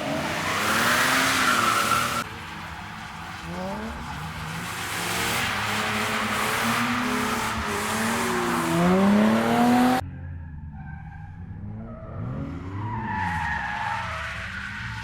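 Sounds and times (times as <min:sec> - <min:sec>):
tyres screeching: 0:00.0 - 0:05.0
car engine revving: 0:00.0 - 0:10.0.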